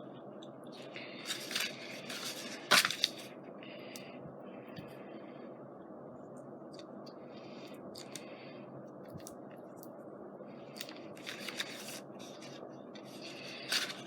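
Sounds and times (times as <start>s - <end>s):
paper handling clicks: 0.9s - 3.3s, 10.7s - 14.0s.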